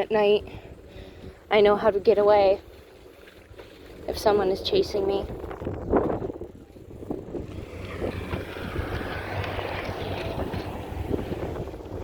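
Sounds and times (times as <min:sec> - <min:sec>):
low road rumble: 0:00.0 - 0:12.0
wind buffeting microphone: 0:00.0 - 0:12.0.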